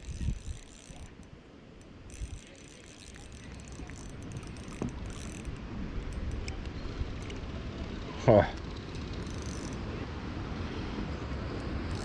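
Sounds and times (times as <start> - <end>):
wind on microphone: 0.0 - 1.1
fishing reel ticking: 0.0 - 6.5, 8.8 - 9.8.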